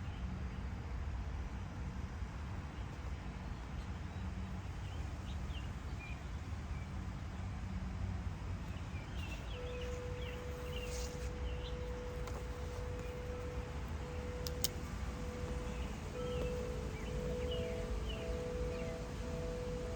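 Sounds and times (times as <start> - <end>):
faint steady tone: 0.0 - 19.9
steady low rumble: 8.2 - 19.9
birds chirping: 8.6 - 19.9.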